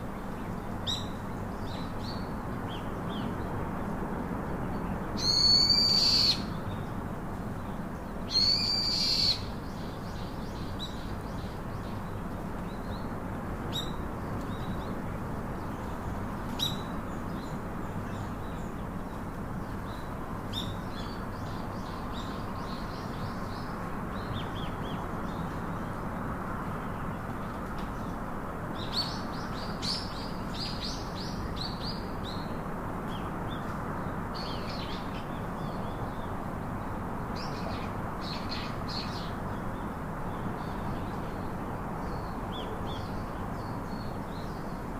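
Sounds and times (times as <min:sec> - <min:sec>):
steady background hiss: 0:00.0 - 0:44.9
drawn-out high bird calls: 0:05.2 - 0:06.6, 0:08.3 - 0:09.5.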